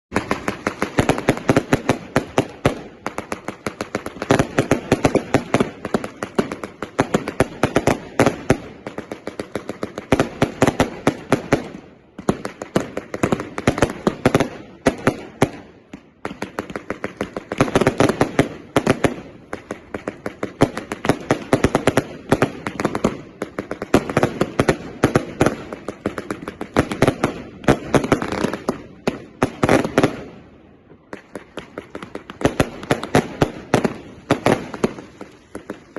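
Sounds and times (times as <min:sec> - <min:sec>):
firework cake shots and cracks: 0:31.0 - 0:35.9.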